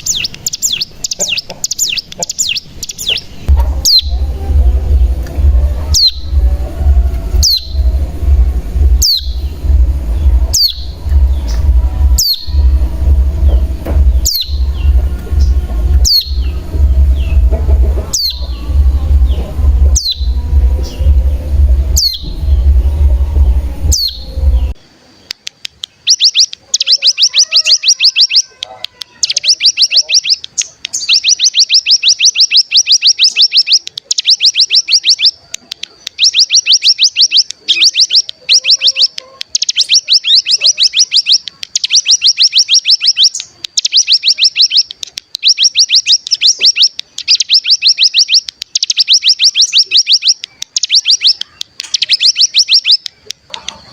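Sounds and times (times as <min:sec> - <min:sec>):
rapid rattling bird trills: 0:00.0 - 0:24.8, 0:26.0 - 0:53.9
high bird call notes: 0:00.0 - 0:25.3, 0:25.9 - 0:53.9
low rumble: 0:03.4 - 0:24.8.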